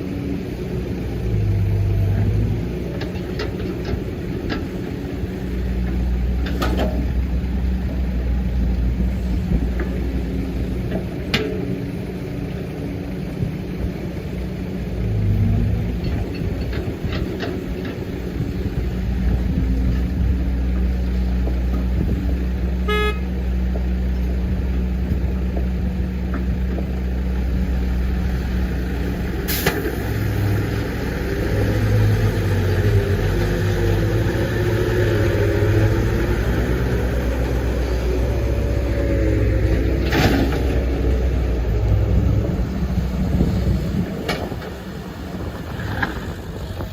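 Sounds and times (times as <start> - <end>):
excavator diesel engine: 0.0 - 46.9
excavator digging dirt: 0.0 - 46.9
short horn toot: 22.8 - 23.3.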